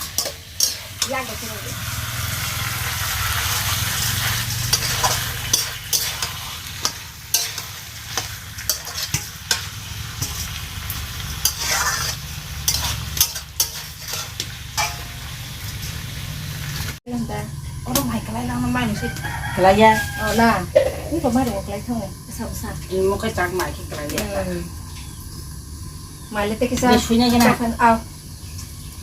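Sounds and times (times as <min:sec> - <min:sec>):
food sizzling in hot oil: 0:00.0 - 0:29.0
spoon scraping and knocking pot: 0:11.4 - 0:15.0.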